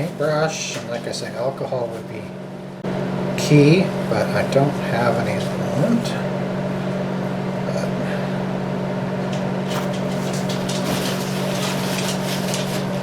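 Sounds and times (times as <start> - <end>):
machine humming: 0.0 - 13.0
scraping and rubbing: 9.7 - 13.0.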